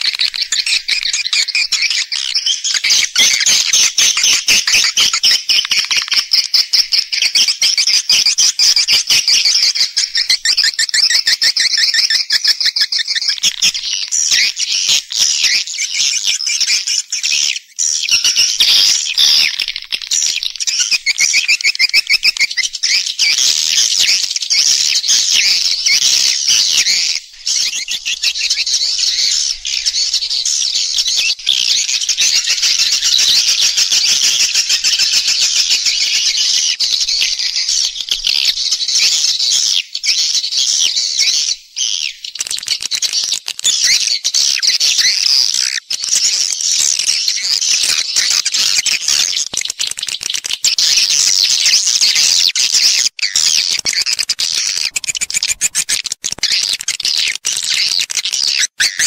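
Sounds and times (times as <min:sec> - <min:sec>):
swiftlets twittering: 0:53.4 - 0:56.1.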